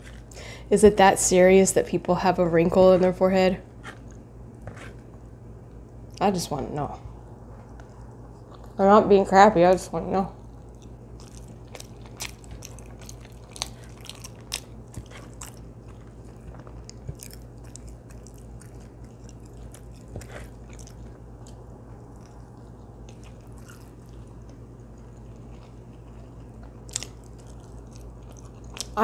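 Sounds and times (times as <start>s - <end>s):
steady low hum: 0.0s - 29.0s
chewing soft food: 7.1s - 8.8s, 10.3s - 29.0s.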